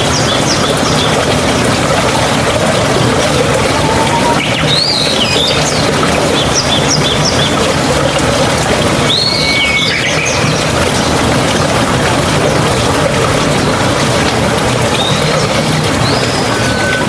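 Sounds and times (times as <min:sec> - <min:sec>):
running water: 0:00.0 - 0:17.0
birds calling: 0:03.3 - 0:08.1, 0:09.0 - 0:11.8, 0:14.8 - 0:17.0.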